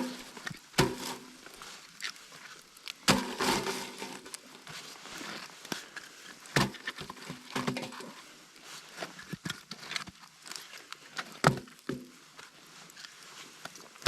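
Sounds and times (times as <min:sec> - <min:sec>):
firewood knocking and clattering: 0:03.1 - 0:04.4.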